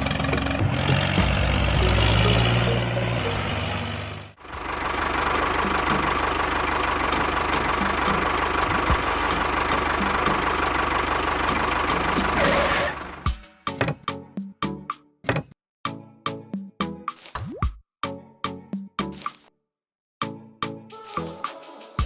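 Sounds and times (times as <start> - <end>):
engine running steadily: 0.0 - 13.9.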